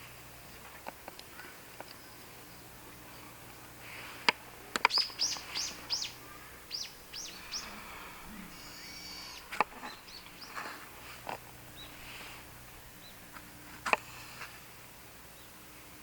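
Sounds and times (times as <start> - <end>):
sharp clicks: 4.2 - 6.1
bird chirping high notes: 4.9 - 10.6.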